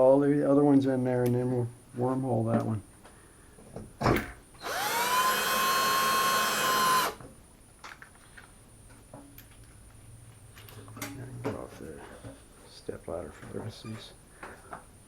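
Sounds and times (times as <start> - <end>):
electric drill whining: 4.6 - 7.2.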